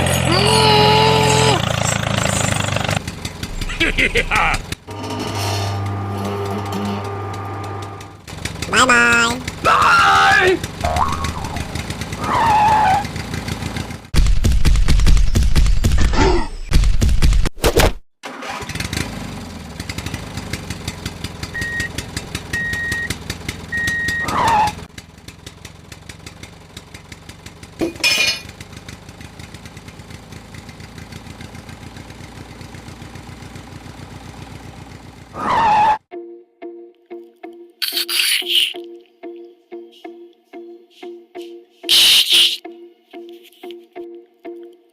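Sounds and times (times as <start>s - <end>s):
engine running: 0.0s - 16.0s, 18.3s - 36.0s
rapid pulsing engine chug: 1.0s - 5.0s, 6.5s - 14.2s, 19.9s - 27.8s.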